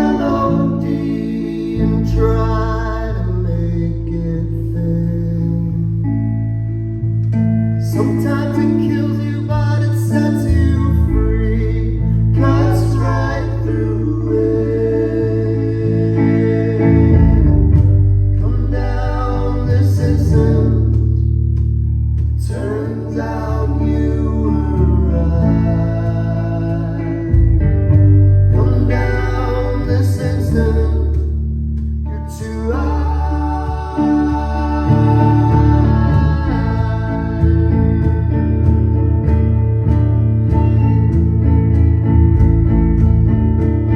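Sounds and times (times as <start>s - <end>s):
person singing: 0.0s - 6.0s, 7.9s - 17.8s, 18.4s - 21.2s, 22.4s - 27.9s, 28.5s - 31.4s, 32.1s - 38.8s
sustained bass notes: 0.0s - 43.9s
live band playing slow song: 7.2s - 43.9s.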